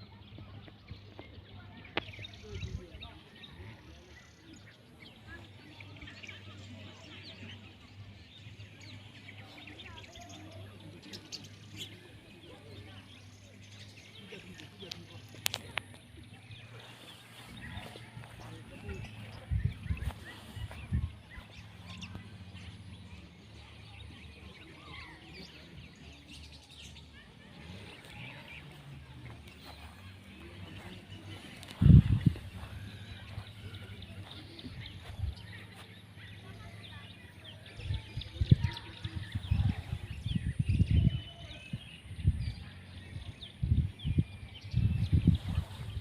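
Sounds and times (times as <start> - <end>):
birds chirping: 0.0 - 46.0
steady low rumble: 15.7 - 23.7, 27.4 - 36.8.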